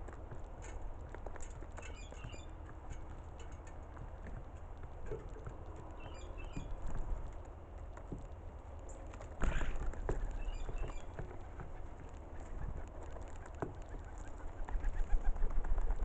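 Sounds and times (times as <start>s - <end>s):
high bird chirps: 6.0s - 6.7s.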